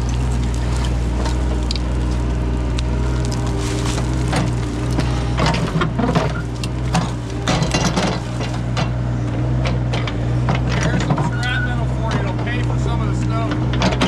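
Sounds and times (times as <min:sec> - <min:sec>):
bucket scraping through rubble: 0:00.0 - 0:09.0
digging machine engine running: 0:00.0 - 0:14.0.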